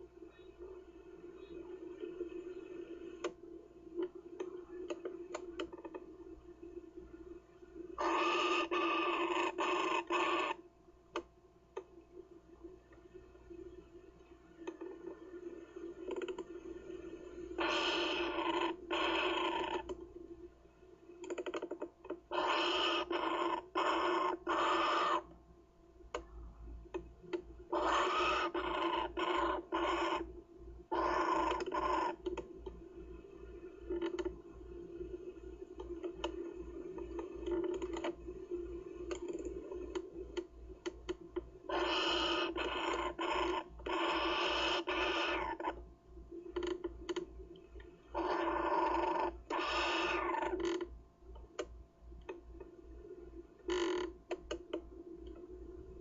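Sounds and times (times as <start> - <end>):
kookaburra chick calling: 8.0 - 10.6, 22.3 - 25.3, 27.7 - 30.2.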